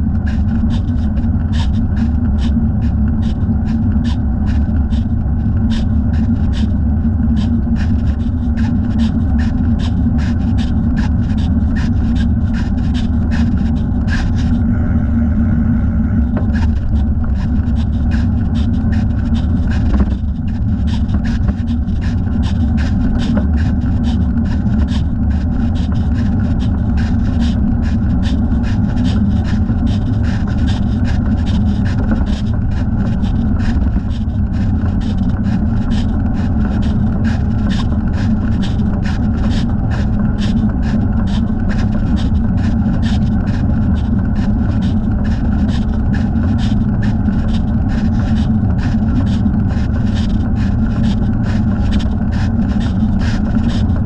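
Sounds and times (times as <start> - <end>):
tyres and wind rumble: 0.0 - 26.5.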